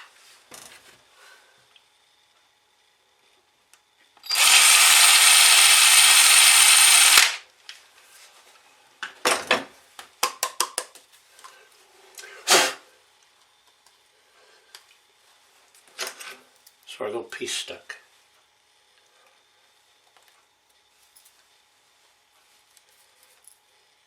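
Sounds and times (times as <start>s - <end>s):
electric drill boring: 4.2s - 7.4s.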